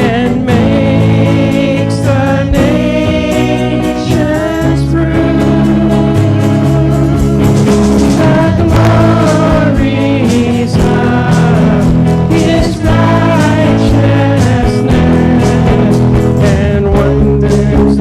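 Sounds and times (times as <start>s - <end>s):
band accompaniment: 0.0s - 18.0s
people singing: 0.0s - 18.0s.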